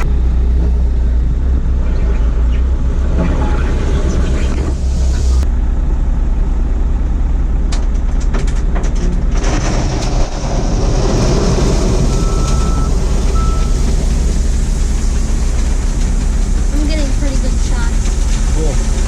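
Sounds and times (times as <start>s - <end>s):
diesel truck engine droning: 0.0s - 19.0s
rattles and clicks: 7.7s - 19.0s.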